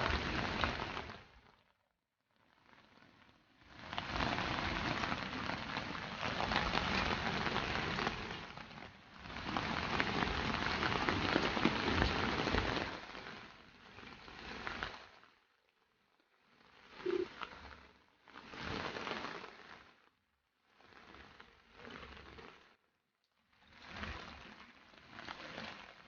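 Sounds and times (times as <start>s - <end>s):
rain patter: 0.0s - 1.5s, 2.6s - 15.3s, 16.5s - 19.8s.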